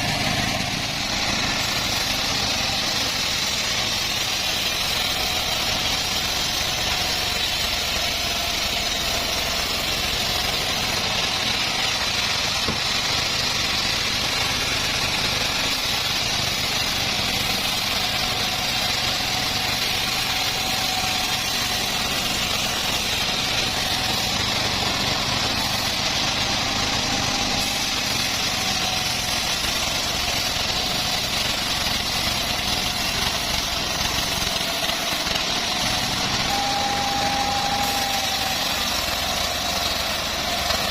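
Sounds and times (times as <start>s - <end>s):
bandsaw sawmill engine running: 0.0s - 40.9s
thin high whine: 35.7s - 40.9s.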